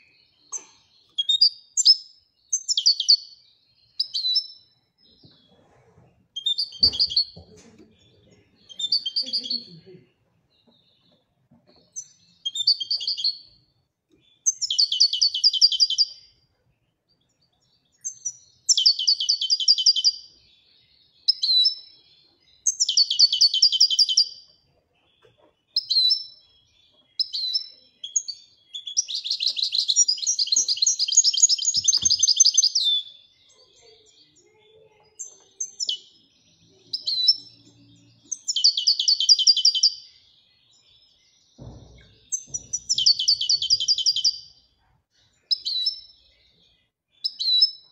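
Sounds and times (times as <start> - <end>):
goldfinch singing twittering trills: 6.4 - 9.9, 25.1 - 44.5.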